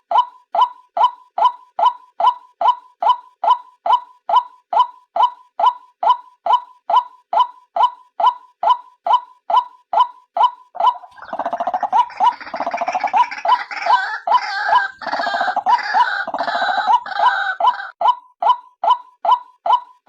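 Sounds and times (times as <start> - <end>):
rattling gurgling bird call: 10.8 - 17.9.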